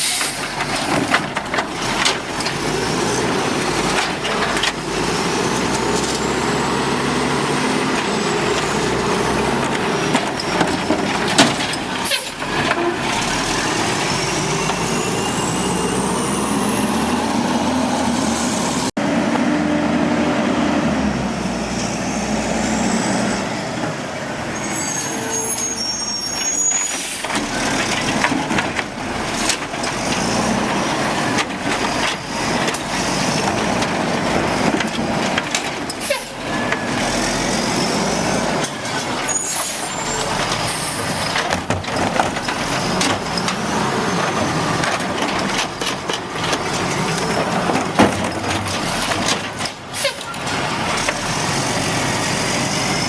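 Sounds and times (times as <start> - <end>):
air brake squeal and hiss: 0.0 - 0.5, 24.3 - 27.3, 36.0 - 36.4, 38.9 - 41.1, 49.9 - 50.4
garbage truck running: 0.0 - 53.0
mechanical knocks and clunks: 9.5 - 13.2, 40.2 - 51.2.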